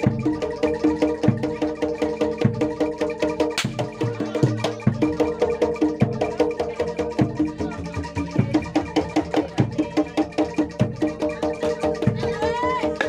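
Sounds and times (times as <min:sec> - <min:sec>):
pitched percussion strokes: 0:00.0 - 0:13.0.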